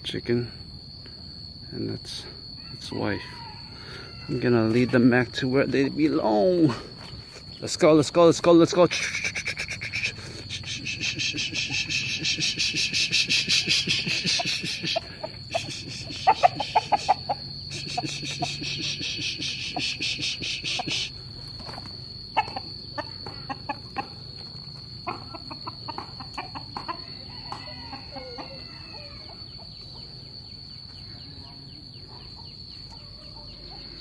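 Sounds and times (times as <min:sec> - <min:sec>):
insects pulsing trill: 0:00.0 - 0:34.0
steady high-pitched buzz: 0:04.3 - 0:28.1
chickens clucking: 0:08.8 - 0:34.0.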